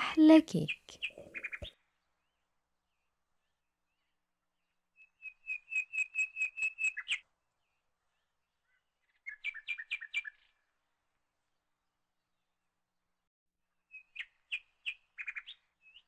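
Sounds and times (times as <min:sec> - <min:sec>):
small bird chirping rapidly: 0:00.5 - 0:01.7, 0:05.0 - 0:07.2, 0:08.7 - 0:10.5, 0:13.9 - 0:16.0.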